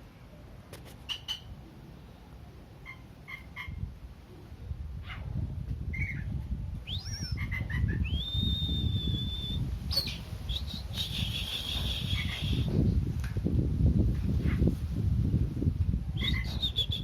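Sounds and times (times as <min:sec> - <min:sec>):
bird singing whistled notes: 0:05.9 - 0:12.7, 0:16.2 - 0:17.0.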